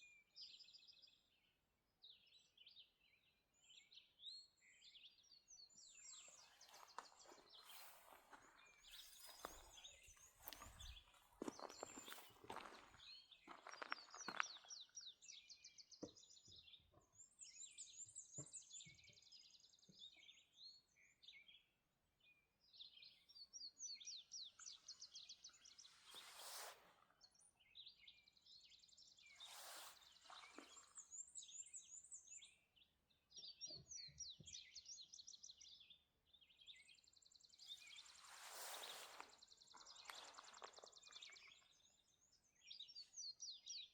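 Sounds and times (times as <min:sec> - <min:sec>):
songbirds chirping and trilling: 0:00.0 - 0:43.9.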